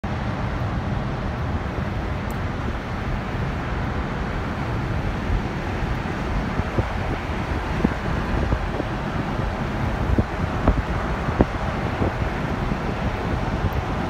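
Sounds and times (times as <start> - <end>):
car driving road rumble: 0.0 - 14.0.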